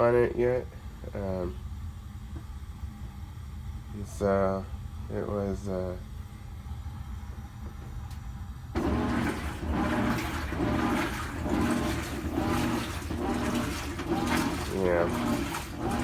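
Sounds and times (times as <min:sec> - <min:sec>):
washing machine hum: 0:00.0 - 0:16.0
water rushing into tub: 0:08.8 - 0:16.0.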